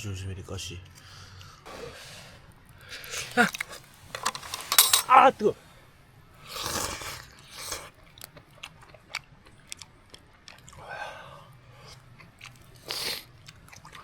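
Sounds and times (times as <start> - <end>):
noisy puffs: 1.1 - 5.8
person chewing food: 6.4 - 14.0.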